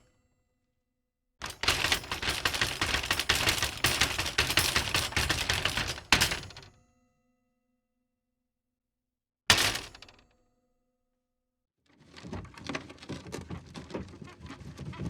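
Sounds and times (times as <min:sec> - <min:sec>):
rapid clicks and clatter: 0:01.4 - 0:06.6, 0:09.5 - 0:10.2, 0:12.0 - 0:15.0.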